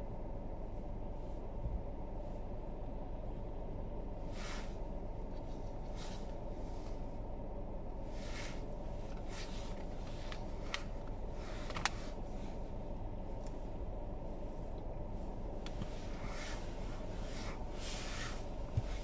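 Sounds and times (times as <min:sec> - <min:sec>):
low rumble: 0:00.0 - 0:19.0
soft swishing: 0:15.9 - 0:19.0.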